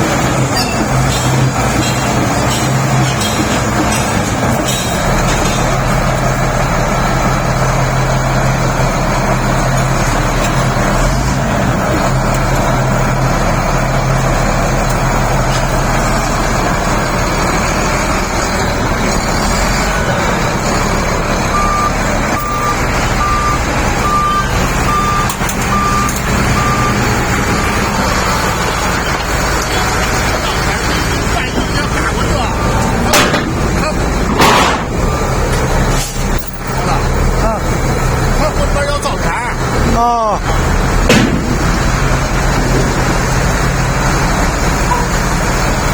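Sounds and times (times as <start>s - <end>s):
bulldozer diesel engine running: 0.0s - 45.9s
reverse alarm beeps: 21.5s - 27.7s, 32.2s - 33.1s.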